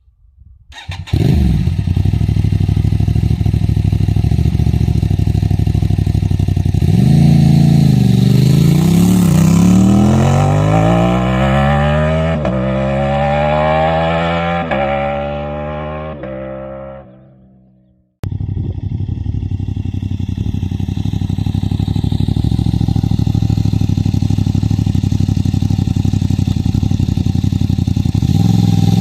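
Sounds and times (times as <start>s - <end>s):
motorcycle engine accelerating: 0.8s - 29.0s
motorcycle idling: 1.6s - 9.8s, 18.2s - 29.0s.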